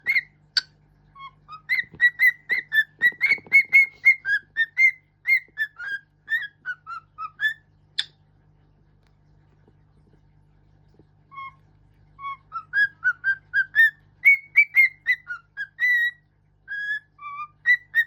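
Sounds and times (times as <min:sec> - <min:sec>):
bird whistling a tune: 0:00.0 - 0:00.3, 0:01.2 - 0:07.6, 0:11.3 - 0:11.6, 0:12.2 - 0:18.0.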